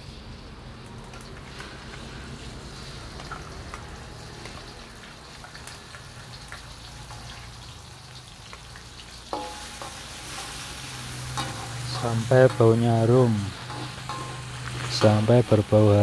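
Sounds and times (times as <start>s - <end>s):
paste sizzling in hot oil: 0.0s - 16.0s
metal spatula scraping plate: 9.4s - 15.2s
short metallic ring: 13.7s - 14.6s.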